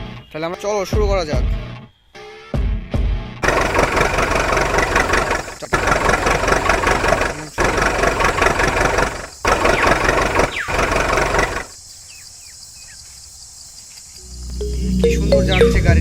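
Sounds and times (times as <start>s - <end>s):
toy vehicle engine sound effect: 3.4s - 11.8s.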